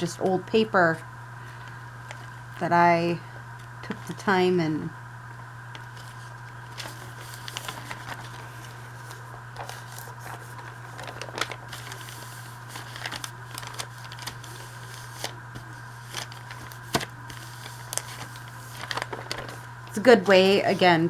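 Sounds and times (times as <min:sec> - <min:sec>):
steady low hum: 0:00.0 - 0:21.0
paper rustling and crinkling: 0:01.4 - 0:02.6, 0:05.7 - 0:21.0.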